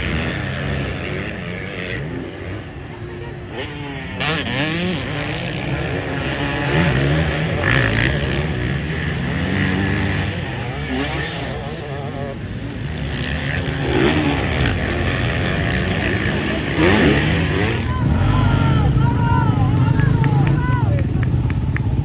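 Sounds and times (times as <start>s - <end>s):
motocross bike engines revving: 0.0s - 22.0s.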